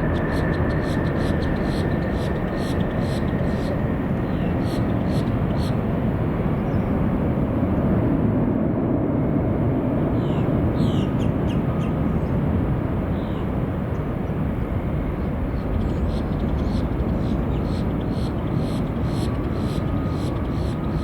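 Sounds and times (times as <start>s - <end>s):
jet airliner engines rumbling: 0.0s - 21.0s
bird chirps: 0.1s - 5.8s, 15.7s - 21.0s.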